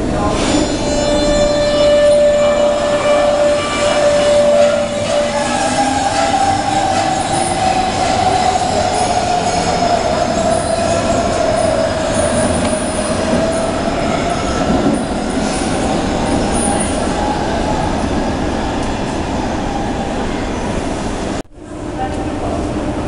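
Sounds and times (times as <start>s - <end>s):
train whine falling in pitch: 0.4s - 10.7s.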